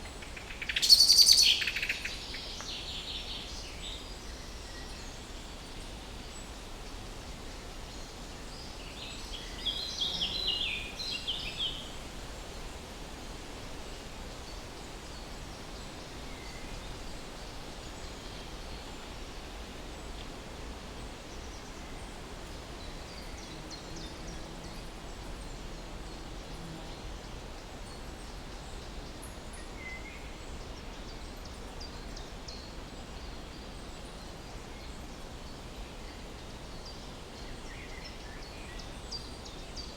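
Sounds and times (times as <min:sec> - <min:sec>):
outdoor background noise: 0:00.0 - 0:39.9.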